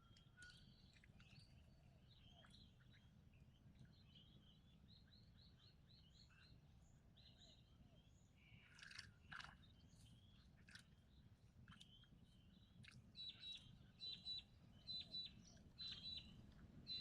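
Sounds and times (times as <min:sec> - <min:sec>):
faint birdsong chirps: 0:00.0 - 0:17.0.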